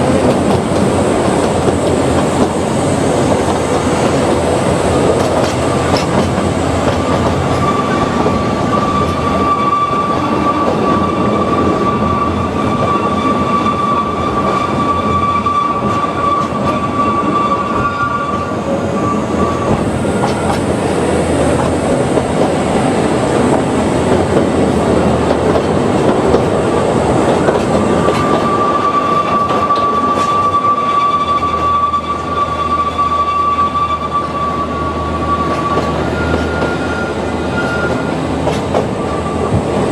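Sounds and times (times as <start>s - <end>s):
train wheels rumbling on track: 0.0s - 39.9s
high-pitched wheel squeal: 7.0s - 20.7s, 27.4s - 38.2s.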